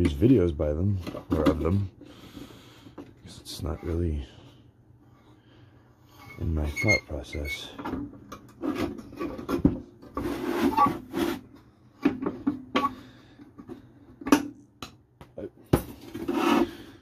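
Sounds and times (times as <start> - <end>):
parts scraping and rubbing: 6.0 - 13.9, 15.9 - 17.0.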